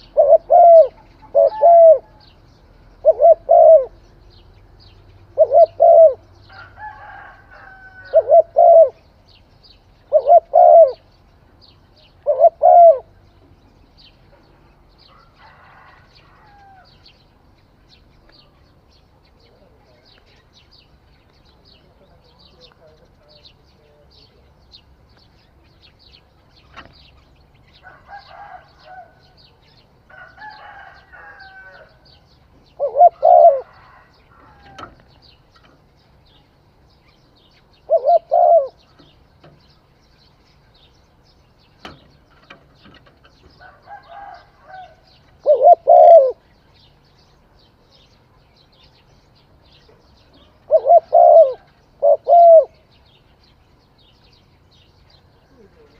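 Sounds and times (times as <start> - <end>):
dove cooing: 0.0 - 4.1, 5.2 - 9.1, 10.0 - 11.1, 12.0 - 13.4, 32.6 - 35.0, 37.7 - 39.2, 43.6 - 46.4, 50.4 - 52.9.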